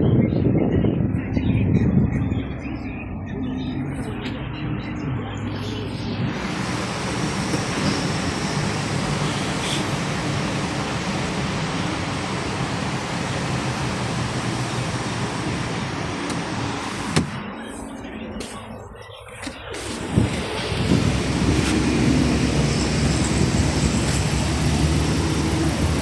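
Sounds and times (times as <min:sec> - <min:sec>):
low car engine hum: 0:00.7 - 0:26.0
car road noise rushing: 0:03.7 - 0:18.8, 0:19.4 - 0:26.0.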